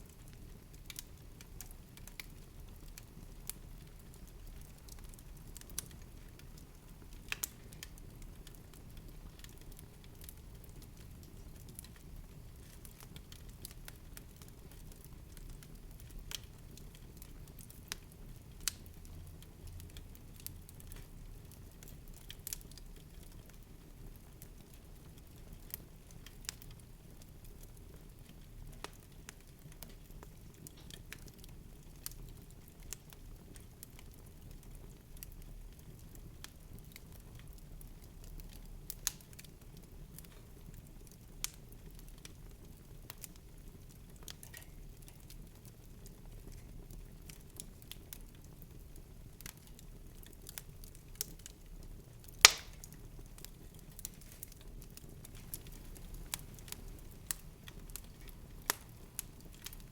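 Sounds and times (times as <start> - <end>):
soft crackles and clicks: 0.0 - 59.9
loud sharp snap: 52.4 - 52.9.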